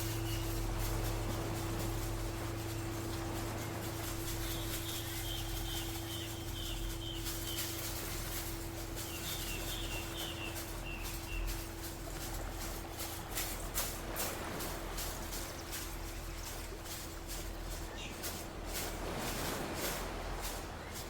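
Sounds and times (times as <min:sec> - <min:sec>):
singing bowl humming: 0:00.0 - 0:13.7
bird chirping: 0:04.3 - 0:08.1, 0:09.0 - 0:11.5.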